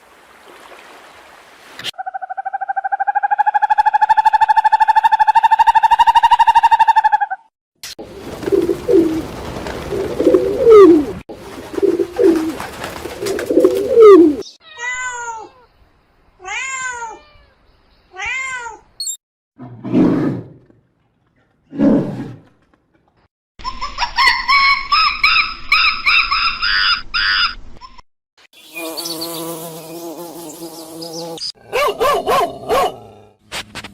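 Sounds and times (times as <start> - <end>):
buzzing insect: 28.6 - 31.4.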